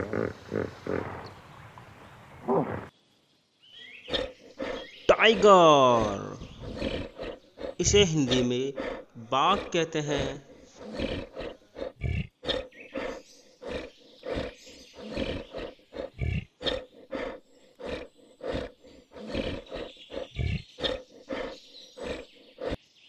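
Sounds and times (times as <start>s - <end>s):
tiger roaring and growling: 4.1s - 22.8s.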